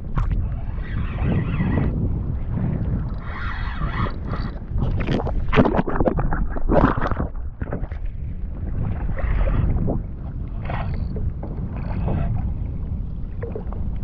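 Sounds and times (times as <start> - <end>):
water sloshing against kayak: 0.0 - 14.0
wind buffeting microphone: 0.0 - 14.0.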